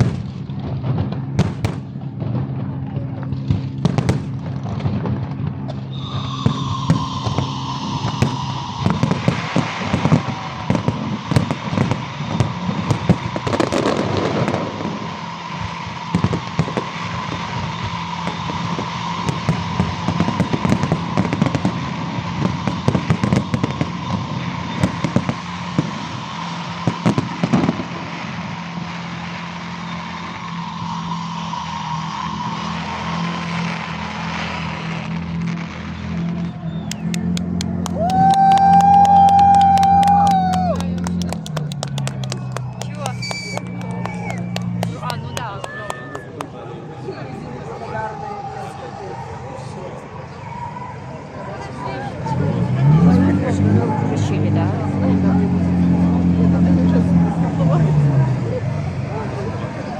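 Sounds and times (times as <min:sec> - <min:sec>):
fireworks bangs and crackling: 0:00.0 - 0:59.9
steady high tone: 0:05.9 - 0:10.7.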